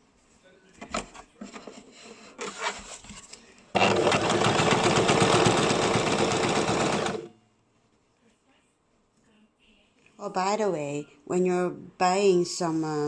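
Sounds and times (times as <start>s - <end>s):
sewing machine stitching: 3.8s - 7.3s.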